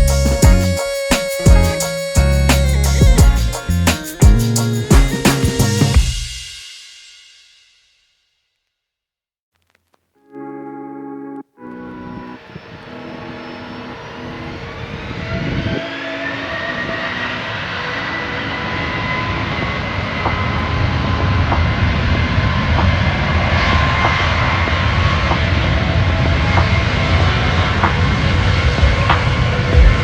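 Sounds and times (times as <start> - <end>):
airliner engines whining: 11.9 - 30.0.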